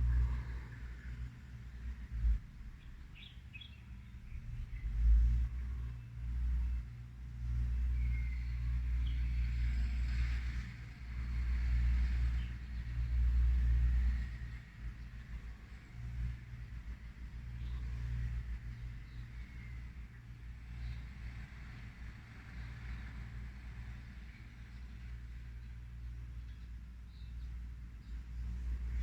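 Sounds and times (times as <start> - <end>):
faint bird chirps: 7.7 - 9.5.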